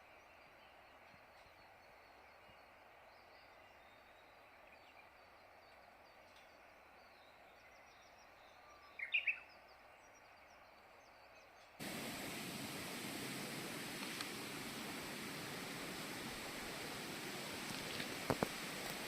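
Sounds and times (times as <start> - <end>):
steady hissing noise: 11.8 - 19.0.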